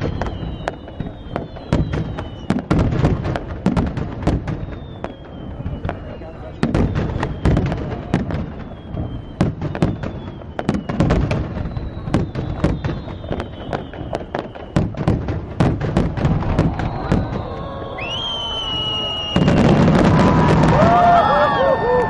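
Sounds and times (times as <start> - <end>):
fireworks bangs and cracks: 0.0 - 22.0
fireworks whistling: 0.0 - 22.0
crowd cheering: 15.9 - 22.0.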